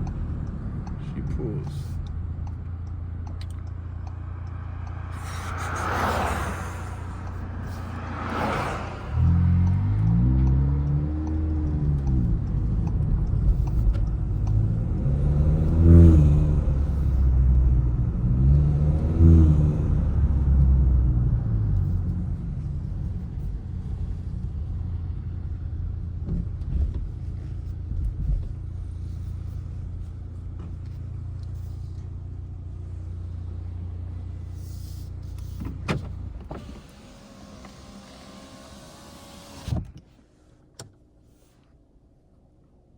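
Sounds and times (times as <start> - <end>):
car engine revving and idling: 0.0 - 40.9
click: 1.6 - 5.3, 10.4 - 14.7, 30.5 - 32.1, 34.5 - 38.9, 39.6 - 41.0.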